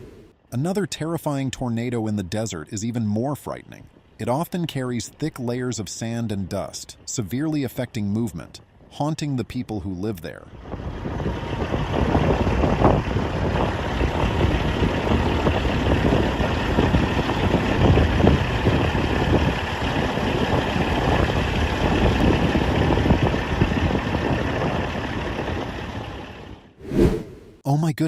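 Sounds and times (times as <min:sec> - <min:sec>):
strong wind buffeting microphone: 0:10.5 - 0:27.5.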